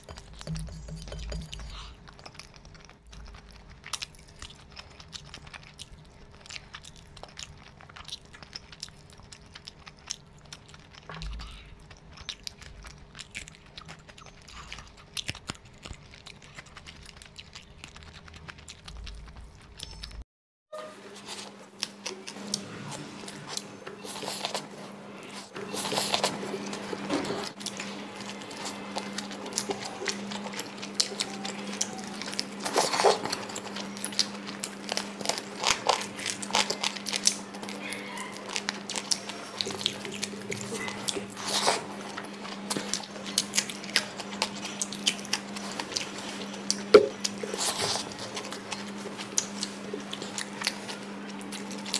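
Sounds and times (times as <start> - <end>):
steady low hum: 0.0 - 20.2
wet chewing and lip smacking: 0.0 - 20.2, 21.2 - 51.9.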